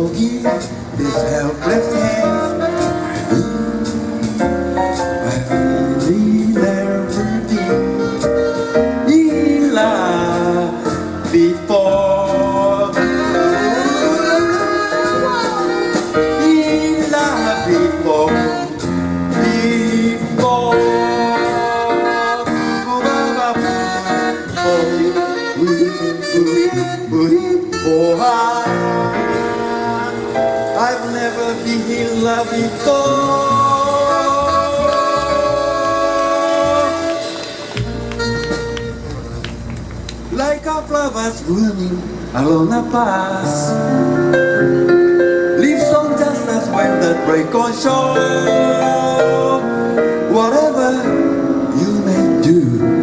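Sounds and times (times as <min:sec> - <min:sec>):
jazz band playing: 0:00.0 - 0:53.0
melodic lead line: 0:00.2 - 0:25.4.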